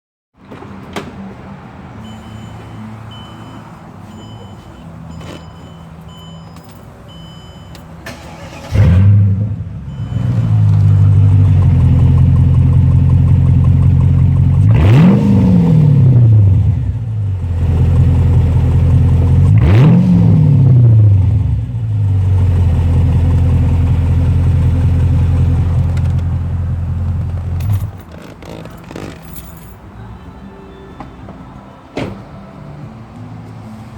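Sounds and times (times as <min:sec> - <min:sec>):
car engine starting and revving: 0:08.0 - 0:29.5.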